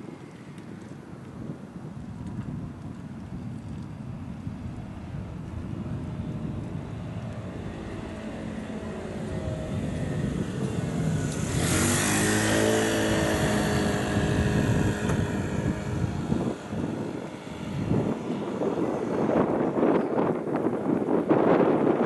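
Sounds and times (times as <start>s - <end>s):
rumble of train wheels: 2.1s - 13.7s.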